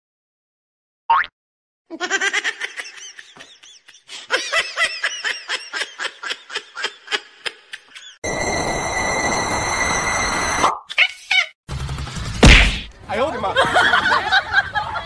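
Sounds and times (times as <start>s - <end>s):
person laughing: 1.9s - 8.2s.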